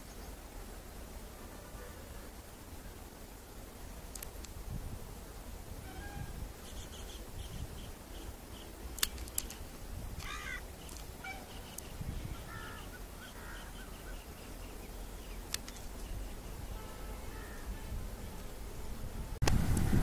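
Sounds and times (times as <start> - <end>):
sharp clicks: 4.1 - 4.6, 8.9 - 12.0, 15.4 - 16.1
bird calls and chirps: 5.9 - 9.6, 10.2 - 18.4.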